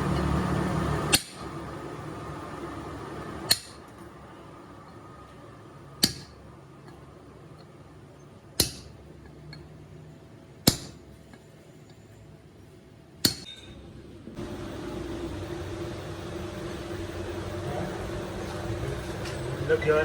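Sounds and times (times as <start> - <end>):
hammer tapping on steel: 6.0 - 6.4, 8.6 - 8.9.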